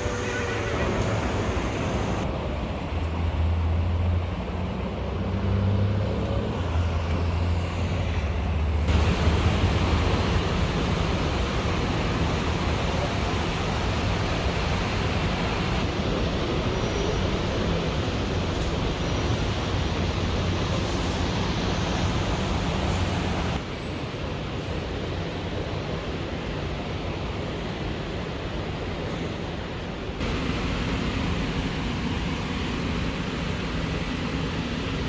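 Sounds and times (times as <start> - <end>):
low engine hum: 0.0 - 15.9, 30.2 - 35.0
road traffic rushing: 0.0 - 23.8, 30.0 - 35.0.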